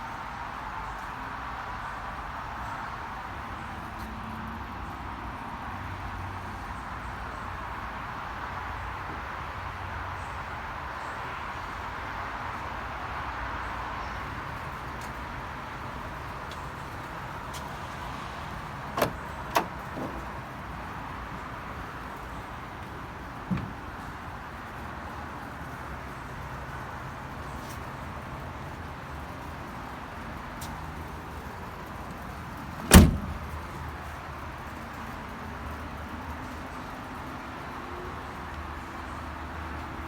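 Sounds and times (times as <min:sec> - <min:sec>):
vehicle low rumble: 0:12.1 - 0:40.0.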